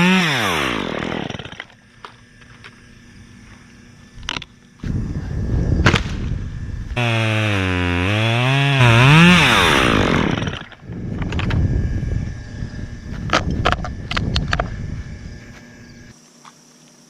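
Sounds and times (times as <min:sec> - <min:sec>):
chainsaw cutting wood: 0:00.0 - 0:02.8, 0:05.8 - 0:12.3.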